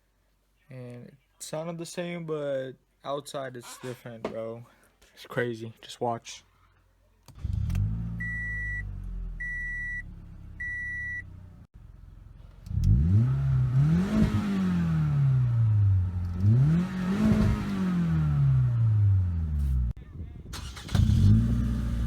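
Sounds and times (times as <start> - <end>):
unmuffled car engine revving: 7.3 - 20.0, 20.6 - 22.0
short beeps: 8.2 - 10.0, 10.6 - 11.2.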